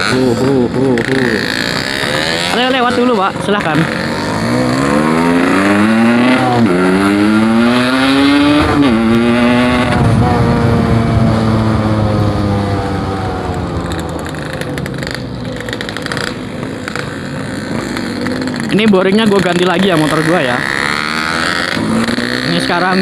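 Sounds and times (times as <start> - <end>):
motorcycle accelerating through gears: 0.0 - 23.0.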